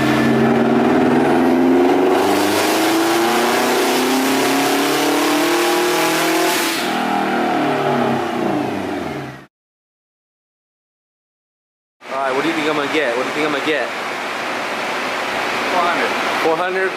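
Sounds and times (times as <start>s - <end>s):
car engine revving on dyno: 0.0s - 9.5s.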